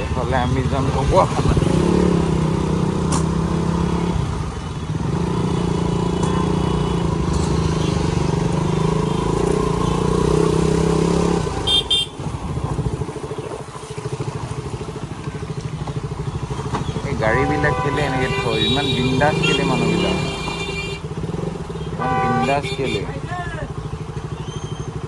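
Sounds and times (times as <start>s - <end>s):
motorcycle engine running: 0.0s - 25.0s
horn toots: 11.0s - 12.3s, 17.2s - 21.2s, 21.8s - 23.2s.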